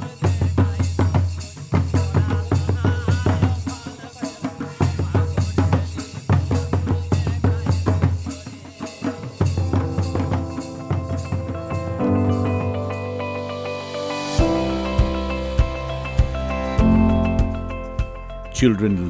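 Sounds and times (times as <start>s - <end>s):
tribal drums dance rhythm: 0.0s - 12.9s, 13.9s - 19.0s
deep drum: 9.5s - 13.0s, 14.4s - 19.0s.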